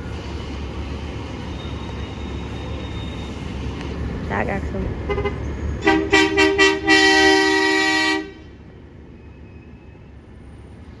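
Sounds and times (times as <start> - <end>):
truck horn honking: 5.1 - 8.4.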